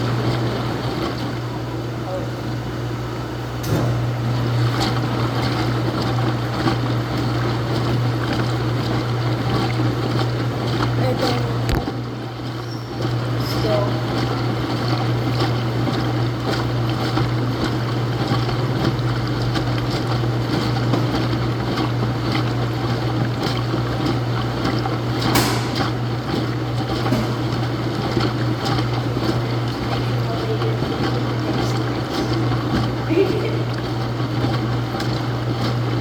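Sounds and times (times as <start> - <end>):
washing machine humming and churning: 0.0 - 36.0
sharp click: 25.4 - 26.0.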